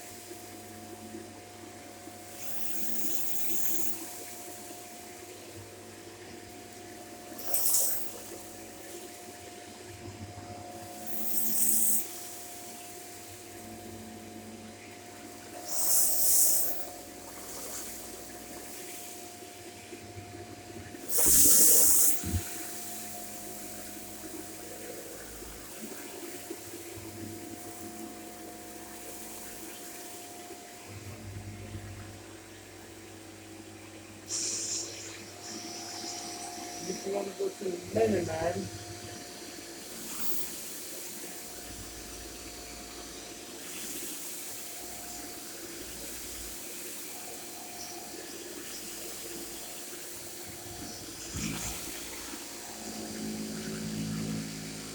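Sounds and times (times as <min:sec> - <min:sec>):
vacuum cleaner running: 0:15.2 - 0:32.4, 0:34.3 - 0:54.9
loud hissing rush: 0:21.1 - 0:22.9, 0:34.3 - 0:38.7
vacuum cleaner humming: 0:34.3 - 0:40.2.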